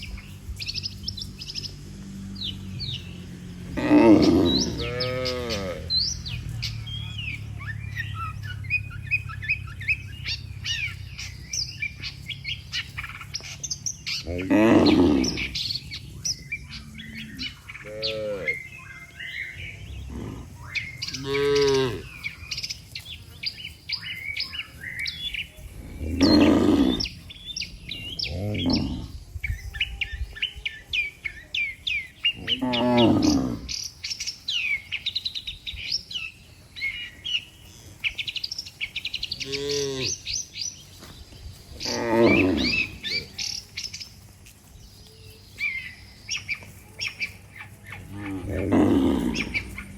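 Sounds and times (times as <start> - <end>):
birds chirping: 0.0 - 49.9
cattle mooing: 2.5 - 10.4, 14.1 - 15.7, 16.7 - 18.7, 19.6 - 22.4, 25.8 - 27.2, 28.2 - 29.2, 32.4 - 33.8, 39.4 - 40.4, 41.7 - 43.6, 47.9 - 49.9.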